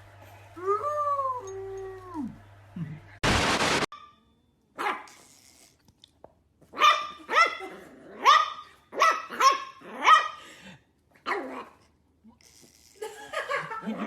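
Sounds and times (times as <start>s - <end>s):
dog barking: 4.8s - 5.1s, 6.8s - 10.4s, 11.3s - 11.7s.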